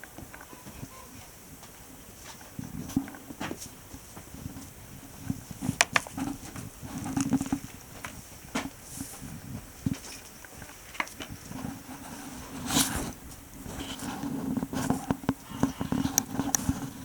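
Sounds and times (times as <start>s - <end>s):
goats rustling and shuffling: 0.0s - 17.0s
small knocks and clicks: 5.3s - 8.8s, 13.3s - 17.0s.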